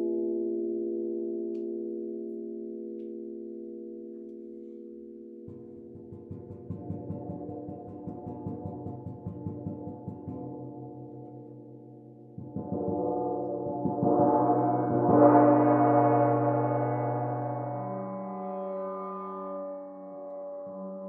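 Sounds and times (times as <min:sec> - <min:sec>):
gong roll: 0:05.5 - 0:20.6.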